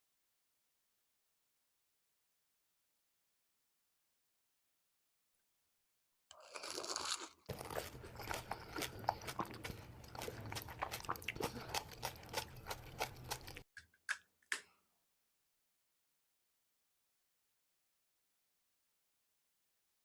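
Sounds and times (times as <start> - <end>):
crunching and chewing crisp snack: 6.3 - 13.7.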